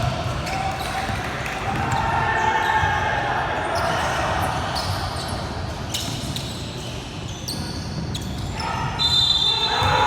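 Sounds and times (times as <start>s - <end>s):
sneaker squeaks: 3.6s - 10.0s.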